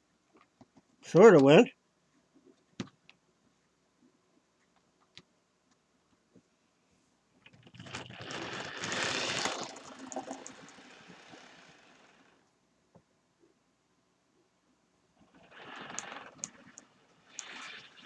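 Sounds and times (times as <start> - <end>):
model train passing on track: 7.9 - 12.4.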